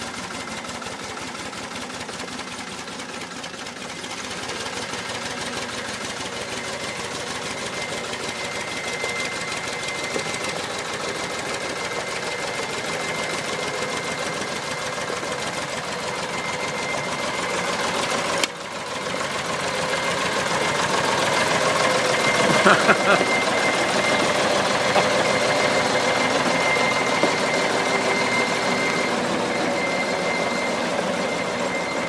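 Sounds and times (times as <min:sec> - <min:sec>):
tractor engine running: 0:00.0 - 0:32.0
thin high whine: 0:19.2 - 0:32.0.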